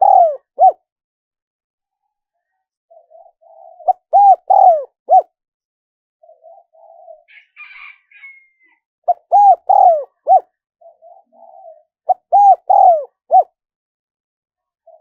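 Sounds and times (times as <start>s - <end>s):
dove cooing: 0.0s - 0.8s, 2.9s - 5.3s, 6.2s - 8.0s, 9.1s - 13.5s.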